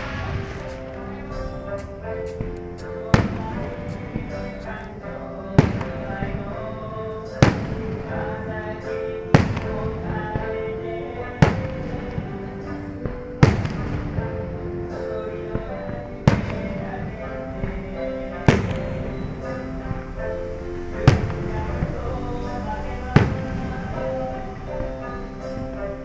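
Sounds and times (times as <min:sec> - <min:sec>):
fireworks booming: 0:00.0 - 0:04.9
fireworks crackling: 0:00.0 - 0:05.0
music with held notes: 0:00.0 - 0:26.0.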